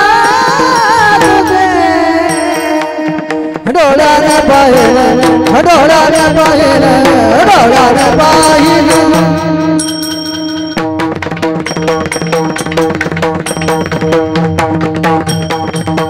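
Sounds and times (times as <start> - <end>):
person singing devotional song: 0.0 - 9.9
tabla beat: 0.0 - 16.0.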